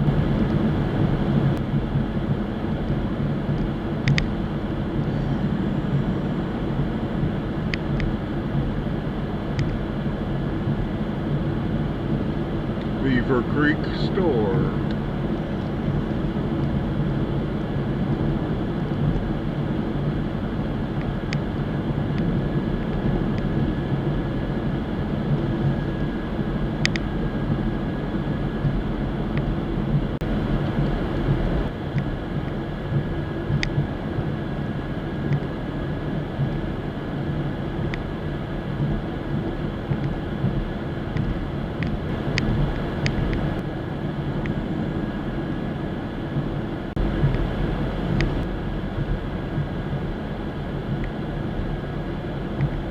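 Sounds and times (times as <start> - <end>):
car engine and road rumble: 0.0 - 52.9
faint light ticks: 3.5 - 4.3, 9.5 - 9.8, 26.8 - 27.1, 31.9 - 34.3, 35.3 - 35.5, 48.1 - 49.8, 52.6 - 52.8.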